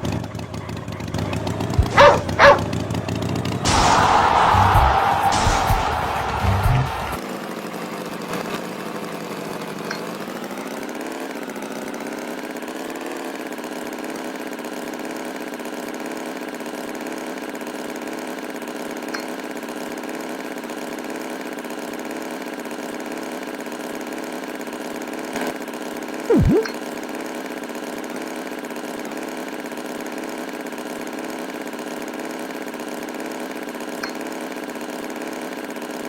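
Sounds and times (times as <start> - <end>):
tractor engine running: 0.0 - 3.7.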